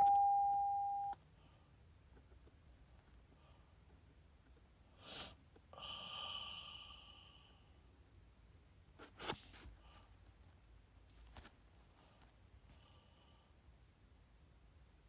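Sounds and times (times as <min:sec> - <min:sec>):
electronic chime: 0:00.0 - 0:01.2
sniff or breath: 0:05.0 - 0:07.0.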